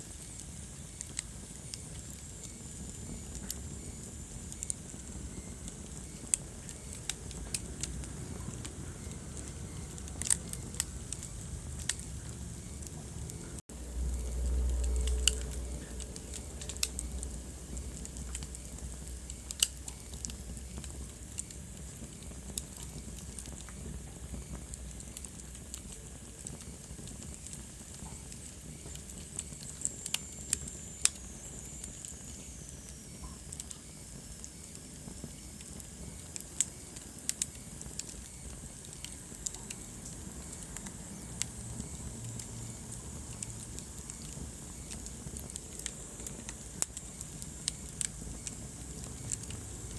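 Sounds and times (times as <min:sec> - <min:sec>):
wood fire crackling and popping: 0:00.0 - 0:49.9
low rumble: 0:07.2 - 0:19.5.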